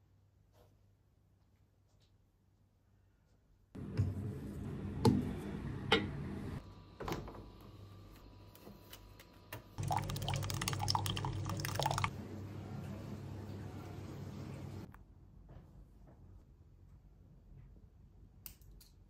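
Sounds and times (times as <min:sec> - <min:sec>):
liquid pouring: 0:09.8 - 0:12.1.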